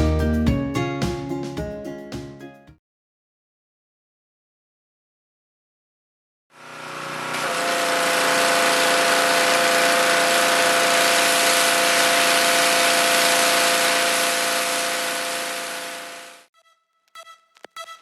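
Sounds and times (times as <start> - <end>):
pressure washer motor hum: 6.6 - 16.5
water jet hissing: 6.7 - 16.5.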